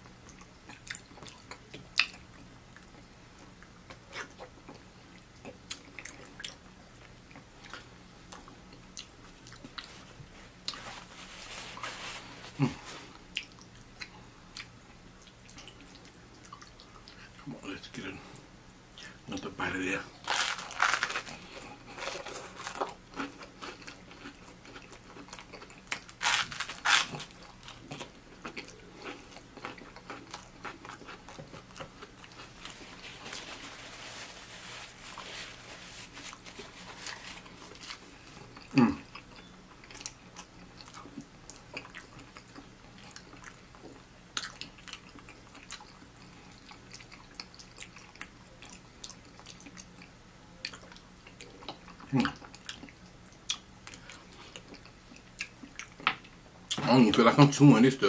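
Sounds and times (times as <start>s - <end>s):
soft rubbing: 9.8s - 13.2s, 32.4s - 38.4s
crunchy toast biting and chewing: 20.2s - 50.1s.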